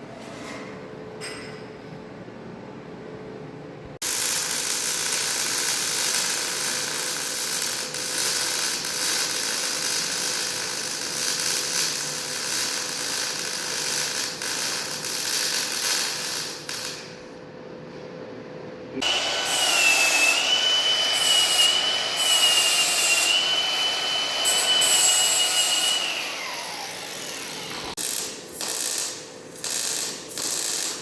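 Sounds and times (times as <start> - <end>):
arc welding crackling sizzle: 4.0 - 17.2, 21.1 - 31.0.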